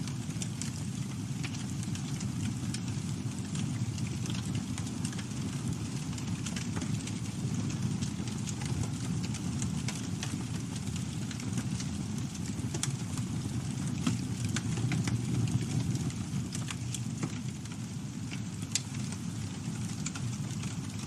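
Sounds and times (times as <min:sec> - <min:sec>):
burning wood crackling and popping: 0:00.0 - 0:21.0
campfire flames rushing: 0:00.0 - 0:21.0.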